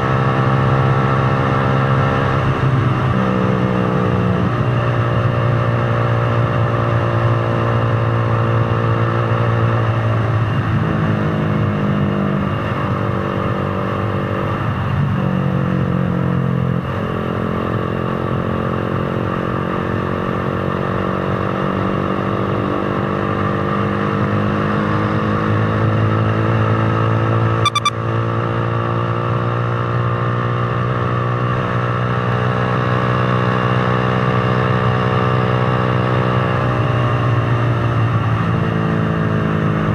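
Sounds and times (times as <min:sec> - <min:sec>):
motorcycle engine running: 0:00.0 - 0:39.9
short sharp click: 0:27.6 - 0:27.9.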